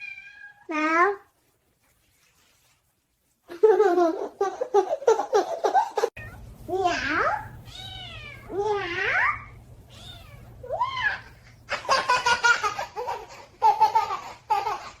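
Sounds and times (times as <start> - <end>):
cat meowing: 0.0 - 0.7, 7.7 - 11.4
baby laughing: 3.5 - 6.2, 11.7 - 15.0.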